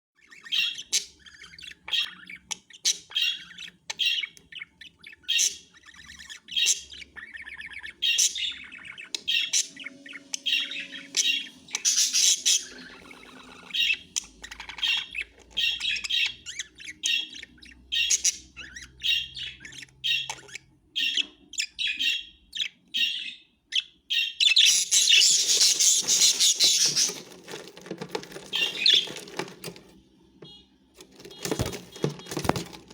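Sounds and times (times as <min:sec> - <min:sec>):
budgerigars chirping and chattering: 0:00.2 - 0:32.9.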